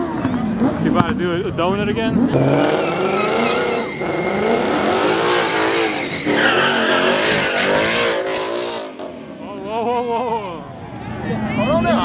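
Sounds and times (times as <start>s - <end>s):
car engine revving: 2.0s - 9.4s
tyres squealing and skidding: 2.3s - 9.1s.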